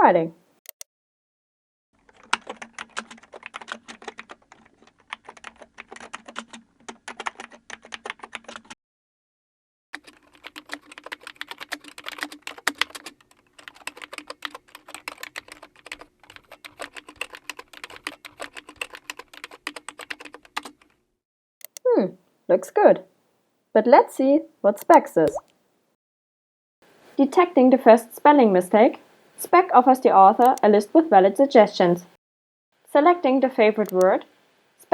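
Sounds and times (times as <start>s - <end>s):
keyboard typing clicks: 30.4s - 30.6s, 33.8s - 34.2s.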